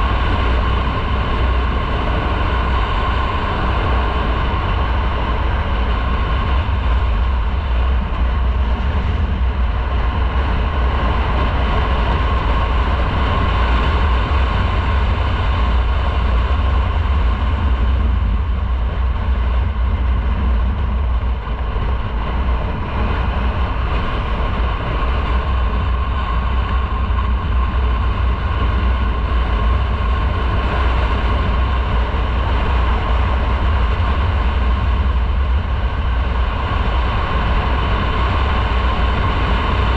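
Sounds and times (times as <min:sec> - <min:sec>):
motorcycle engine and road noise: 0:00.0 - 0:39.9
wind rushing over microphone: 0:00.0 - 0:39.9.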